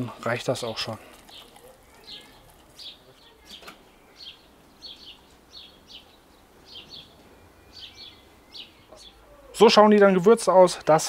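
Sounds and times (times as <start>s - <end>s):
small bird chirping: 1.1s - 9.7s.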